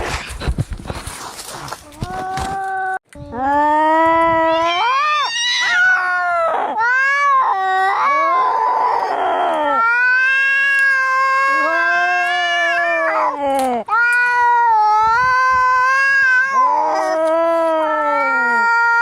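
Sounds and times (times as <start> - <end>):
cats yowling: 4.4 - 19.0.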